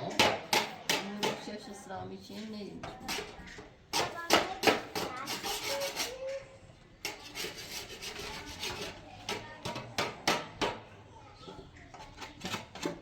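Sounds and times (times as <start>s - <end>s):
scraping strokes: 5.0s - 6.2s, 7.0s - 9.4s.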